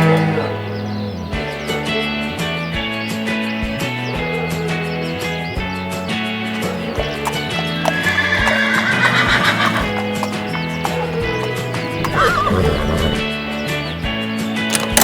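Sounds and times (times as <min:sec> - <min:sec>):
background music: 0:00.0 - 0:15.0
horse whinnying: 0:07.2 - 0:13.4.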